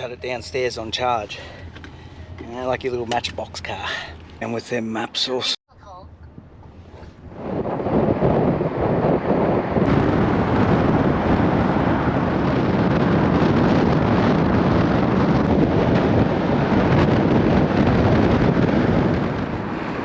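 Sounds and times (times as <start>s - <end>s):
wind buffeting microphone: 5.9s - 20.0s.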